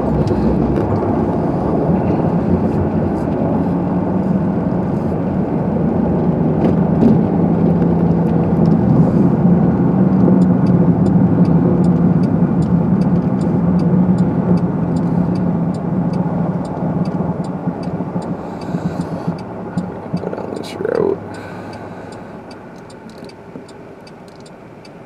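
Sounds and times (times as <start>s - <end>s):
car engine and road noise: 0.0s - 25.0s
fast regular ticking: 10.3s - 25.0s.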